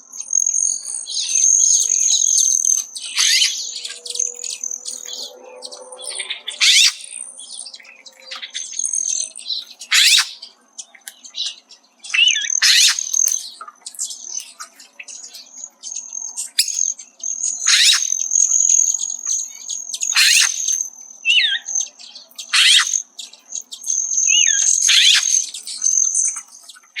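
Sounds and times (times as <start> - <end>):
woodpecker peek calls: 0.4 - 5.3, 6.0 - 7.1, 9.9 - 10.4, 12.2 - 13.4, 17.6 - 18.9, 20.0 - 21.6, 22.4 - 23.1, 24.1 - 26.2.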